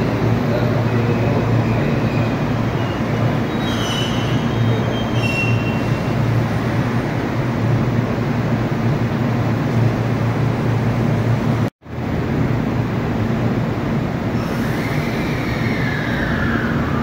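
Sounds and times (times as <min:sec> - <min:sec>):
train pulling in: 0:00.0 - 0:17.0
high brake squeal: 0:01.0 - 0:06.2, 0:14.4 - 0:17.0.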